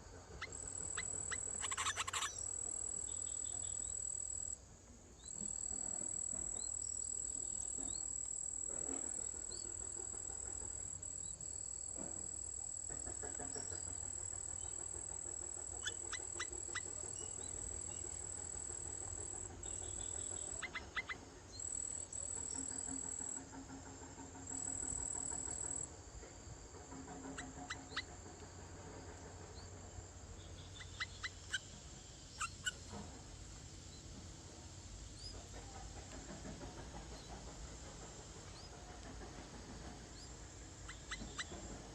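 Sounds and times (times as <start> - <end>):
high-pitched insect trill: 0.4 - 4.6.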